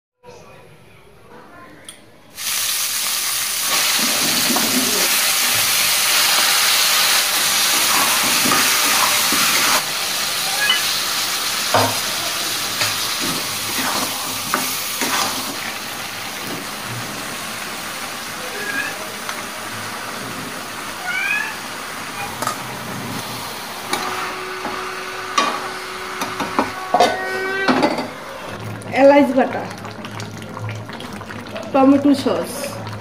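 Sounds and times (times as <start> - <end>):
oil sizzling in a pan: 2.4 - 33.0.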